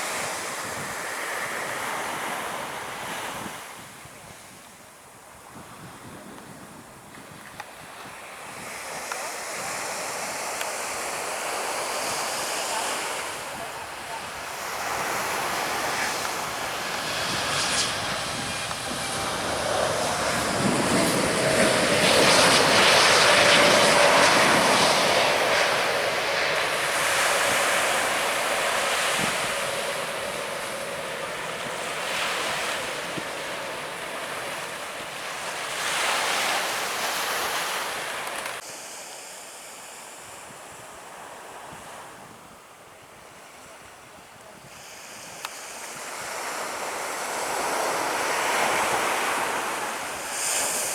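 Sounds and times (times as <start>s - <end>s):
jet airliner passing overhead: 0.0s - 3.6s, 7.8s - 38.6s, 44.8s - 50.9s
surf breaking on beach: 7.7s - 39.1s, 44.7s - 50.9s.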